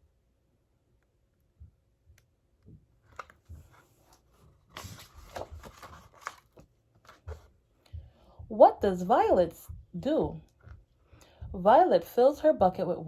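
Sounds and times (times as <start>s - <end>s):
book page turning: 3.0s - 7.5s.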